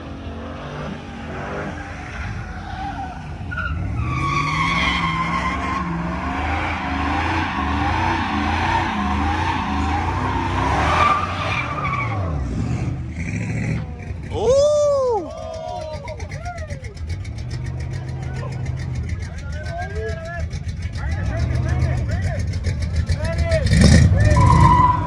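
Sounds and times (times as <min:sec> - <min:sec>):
truck engine revving: 0:00.0 - 0:25.0
tyres squealing: 0:13.8 - 0:25.0.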